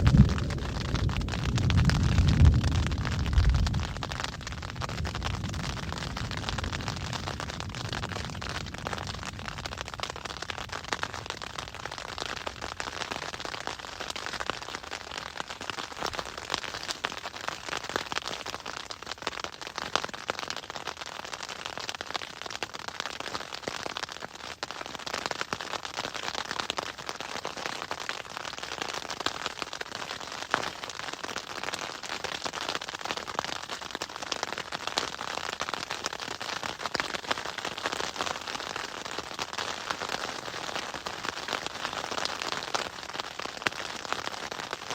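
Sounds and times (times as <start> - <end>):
hail clattering: 0.0 - 18.6.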